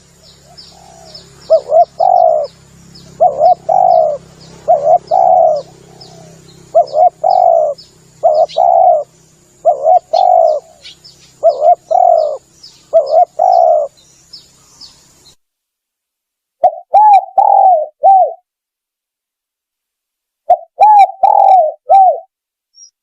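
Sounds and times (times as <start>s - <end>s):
dove cooing: 0.0s - 14.1s, 16.6s - 18.5s, 20.5s - 22.3s
faint high chirps: 22.7s - 23.0s.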